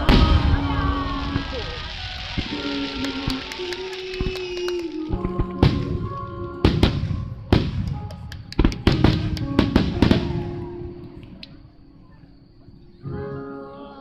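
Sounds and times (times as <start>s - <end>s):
firework bangs: 0.0s - 10.7s
music playing: 0.0s - 14.0s.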